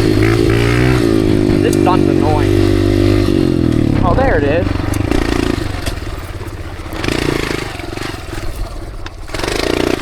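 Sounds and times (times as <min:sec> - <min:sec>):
dirt bike engine idling: 0:00.0 - 0:10.0
throttle blips: 0:01.4 - 0:02.7.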